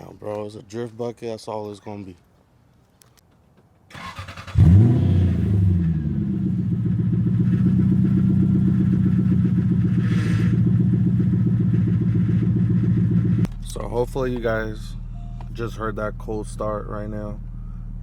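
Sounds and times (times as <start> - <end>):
car engine starting and idling: 3.9 - 18.0.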